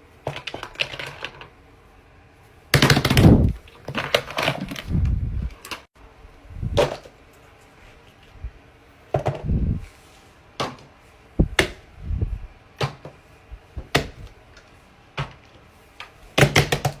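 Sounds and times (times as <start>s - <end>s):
dull thumps: 11.4s - 14.3s.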